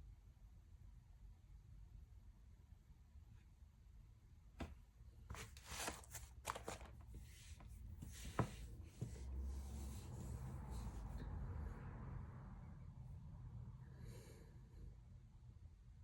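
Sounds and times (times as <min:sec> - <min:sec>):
rustling and handling noises: 0:04.6 - 0:11.2.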